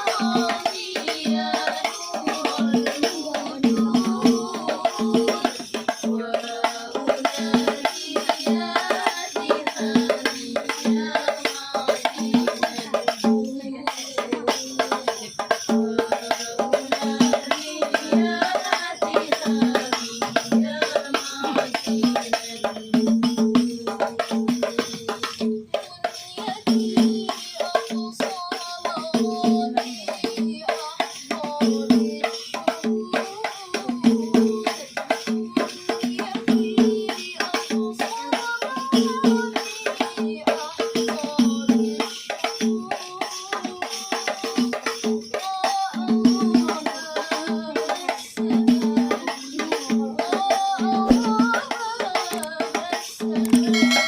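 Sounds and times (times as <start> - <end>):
frame drums beating fast rhythm: 0.0 - 54.0
person singing wavering melody: 53.3 - 54.0.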